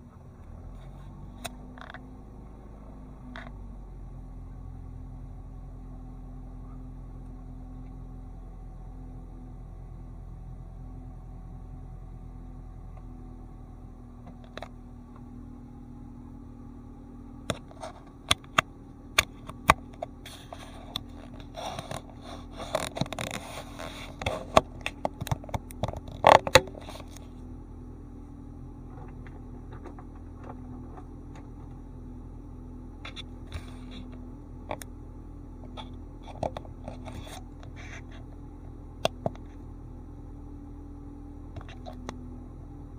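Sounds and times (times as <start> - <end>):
car engine idling: 0.0 - 42.9
sharp clicks and scraping: 0.4 - 2.1, 3.3 - 3.6, 14.2 - 14.8, 17.4 - 27.4, 28.8 - 31.8, 33.0 - 34.9, 35.6 - 38.4, 41.6 - 42.2.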